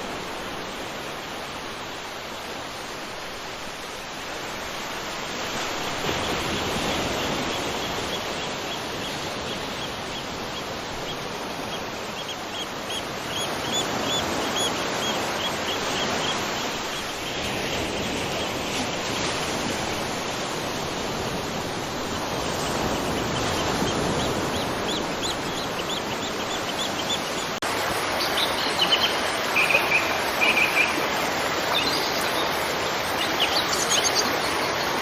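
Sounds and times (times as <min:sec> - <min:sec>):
waterfall rushing: 0:00.0 - 0:35.0
bird chirping: 0:22.7 - 0:27.5, 0:28.2 - 0:31.1, 0:33.1 - 0:34.9.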